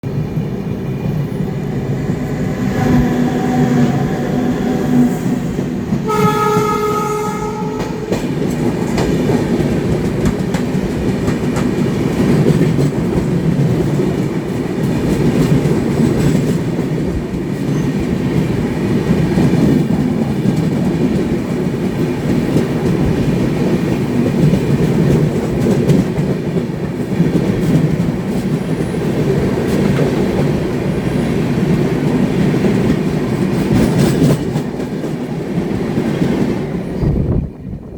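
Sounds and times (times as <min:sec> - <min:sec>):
freight train rumble and wheel clatter: 0:00.0 - 0:37.9
locomotive horn: 0:01.3 - 0:08.3.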